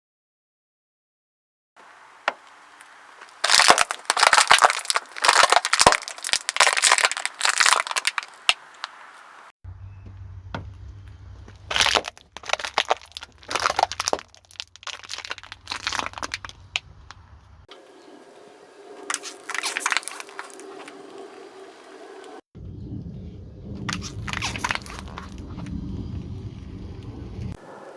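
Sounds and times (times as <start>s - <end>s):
tyres crushing crunchy objects: 2.1s - 17.7s, 19.1s - 21.0s, 23.8s - 25.9s
low steady hum: 8.9s - 27.8s.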